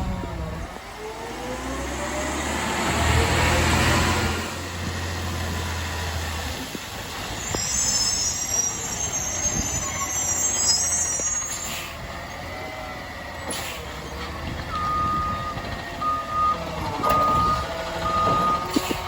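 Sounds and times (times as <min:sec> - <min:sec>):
truck engine low hum: 0:00.0 - 0:07.6, 0:08.8 - 0:19.0
truck brakes squealing: 0:07.0 - 0:19.0.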